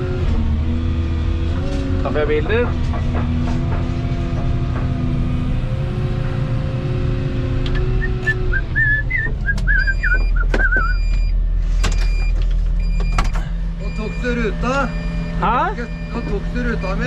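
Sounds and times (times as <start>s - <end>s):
excavator diesel engine droning: 0.0s - 17.0s
sharp knocks: 2.3s - 5.4s.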